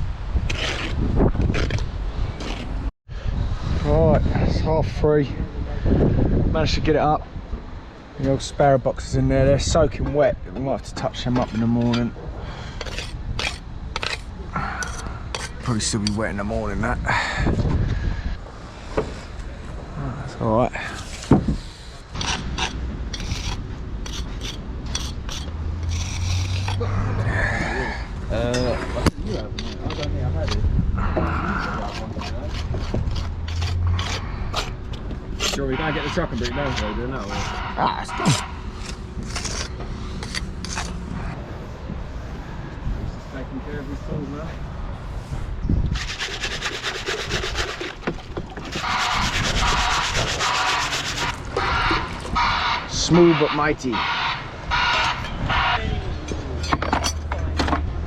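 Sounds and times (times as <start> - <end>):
tool scraping hard surface: 12.7 - 16.7, 20.8 - 26.8, 27.7 - 30.6, 31.2 - 42.4, 45.9 - 52.1.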